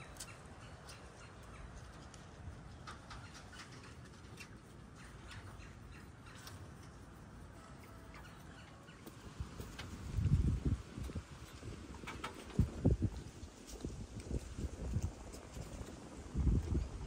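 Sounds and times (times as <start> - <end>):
steady low rumble: 0.0 - 17.0
bird chirps: 2.8 - 6.6.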